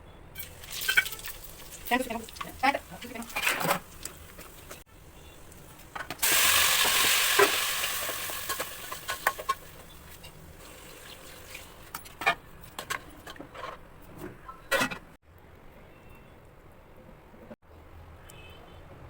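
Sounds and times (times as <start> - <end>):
food sizzling in hot oil: 0.4 - 4.8, 5.7 - 11.9
utensil scraping a pan: 0.7 - 4.8.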